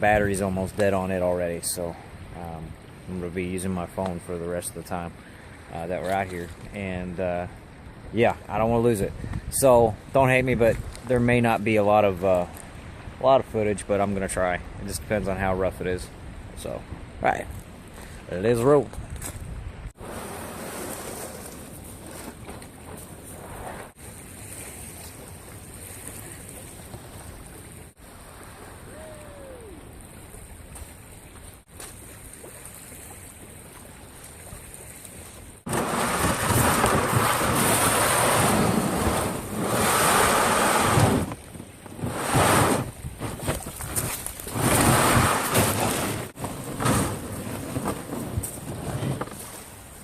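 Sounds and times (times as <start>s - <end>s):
choppy lake water: 0.0s - 50.0s
wind gusts buffeting microphone: 8.0s - 11.7s, 35.6s - 49.3s.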